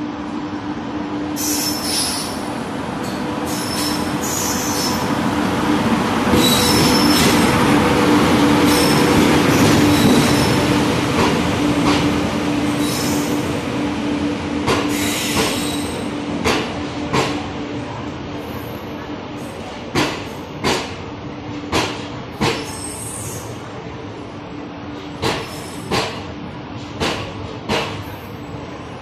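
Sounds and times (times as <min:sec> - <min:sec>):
braking wheels squealing: 0:03.5 - 0:05.1, 0:14.9 - 0:16.0.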